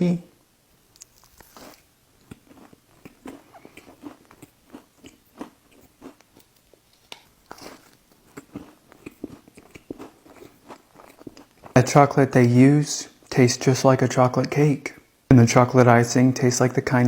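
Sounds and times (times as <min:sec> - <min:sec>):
person chewing cookie: 0:00.8 - 0:11.8.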